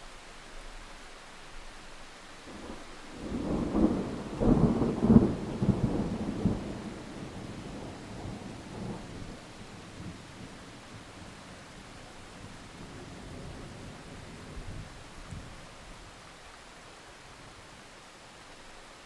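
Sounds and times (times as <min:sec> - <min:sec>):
steady rain: 0:00.0 - 0:19.0
thunder rumbling: 0:02.5 - 0:15.8.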